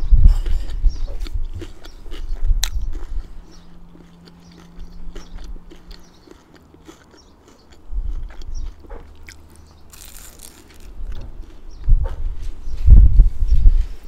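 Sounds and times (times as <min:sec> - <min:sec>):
chewing: 0:00.0 - 0:11.9
wet mouth clicks: 0:00.3 - 0:10.8
crunchy chip bite: 0:00.4 - 0:11.3.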